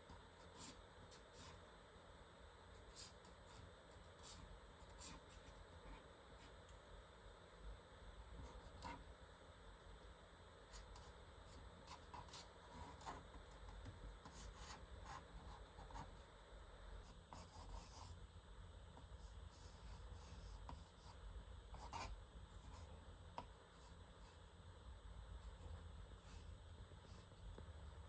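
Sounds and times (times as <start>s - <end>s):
pencil scratching on paper: 10.7s - 16.2s, 17.0s - 18.2s, 19.0s - 24.5s.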